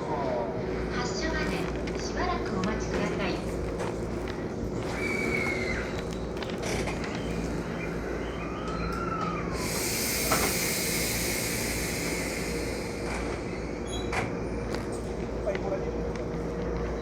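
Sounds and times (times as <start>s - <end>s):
train equipment humming: 0.0s - 17.0s
compressed air hissing: 9.6s - 13.9s.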